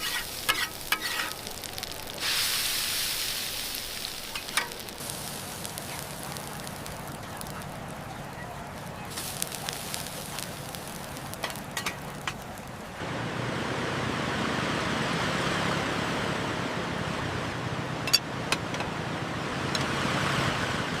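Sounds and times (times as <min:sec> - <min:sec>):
food frying in hot oil: 0:00.0 - 0:13.0.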